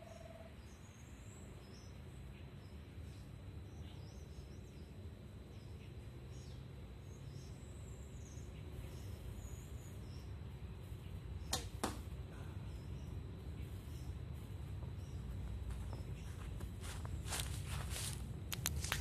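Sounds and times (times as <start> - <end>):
faint high bird chirps: 0.0 - 11.7
low background rumble: 0.0 - 19.0.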